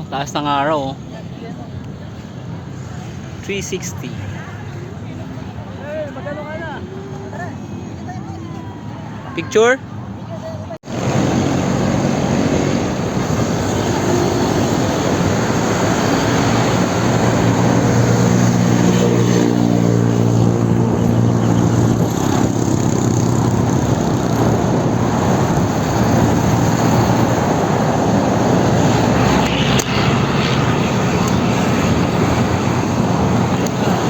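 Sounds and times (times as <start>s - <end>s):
wind rushing on microphone: 10.8s - 34.0s.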